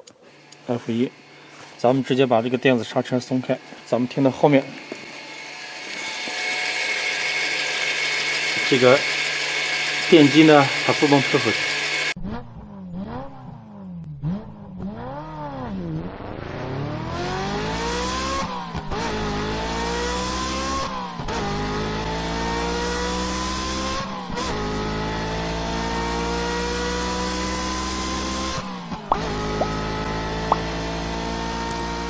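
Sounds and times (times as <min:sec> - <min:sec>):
diesel engine accelerating: 0:07.0 - 0:32.0.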